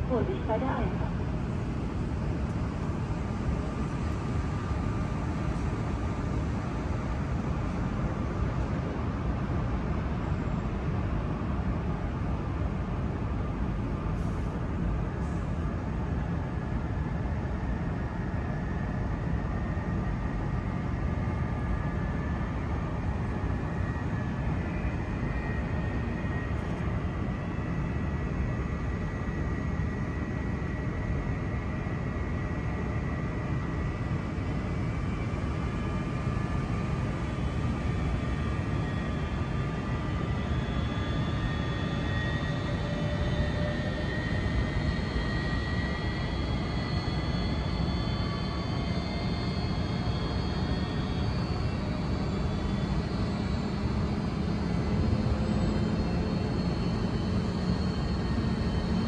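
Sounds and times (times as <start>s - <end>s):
standing train low rumble: 0.0s - 59.0s.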